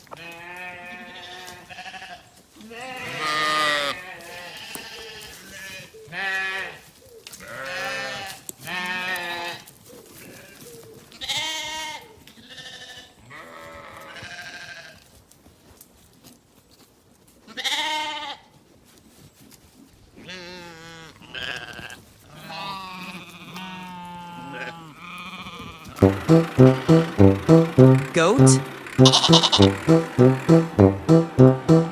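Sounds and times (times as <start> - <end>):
livestock bleating: 0.2 - 6.8, 7.5 - 9.5, 11.2 - 15.0, 20.2 - 25.7, 29.0 - 29.7.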